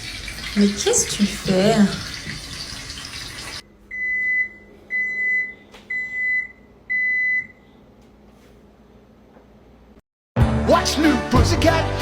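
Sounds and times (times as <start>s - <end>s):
running water: 0.0s - 3.6s.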